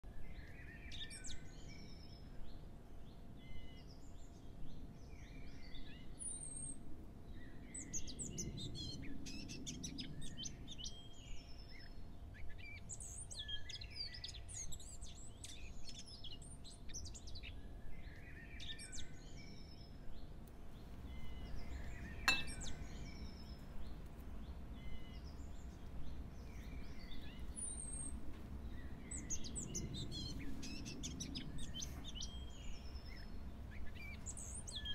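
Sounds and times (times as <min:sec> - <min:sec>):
birds chirping and singing: 0:07.4 - 0:34.9.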